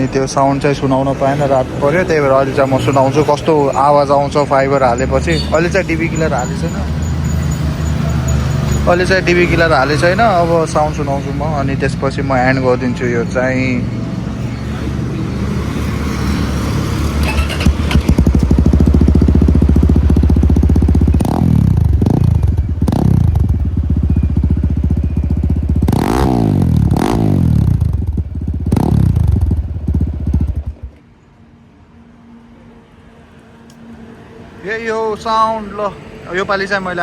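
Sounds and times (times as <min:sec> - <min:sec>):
motorcycle exhaust idling and revving: 0:02.1 - 0:31.0.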